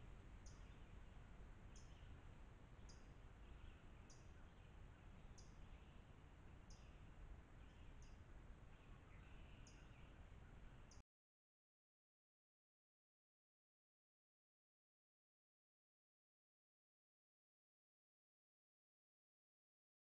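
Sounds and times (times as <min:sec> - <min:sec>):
bird chirping: 0:00.0 - 0:11.0
steady low hiss: 0:00.0 - 0:11.0.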